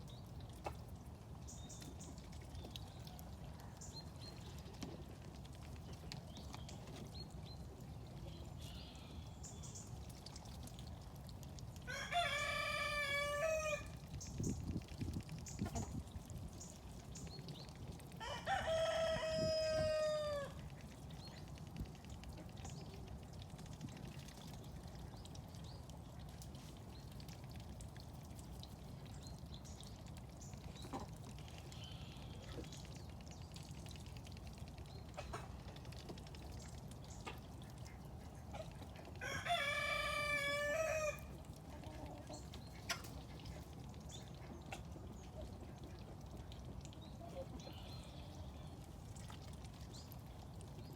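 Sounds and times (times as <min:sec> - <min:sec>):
rooster crowing: 0:11.9 - 0:13.8, 0:39.2 - 0:41.2.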